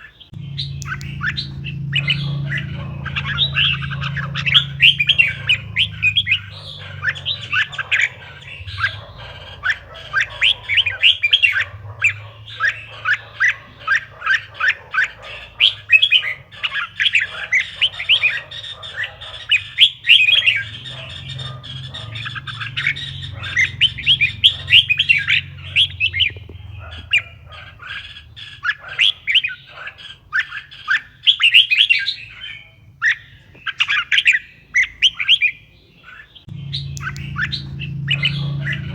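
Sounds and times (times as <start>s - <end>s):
bird chirping song: 0.0s - 38.9s
steady low hum: 0.4s - 14.1s, 36.5s - 38.9s.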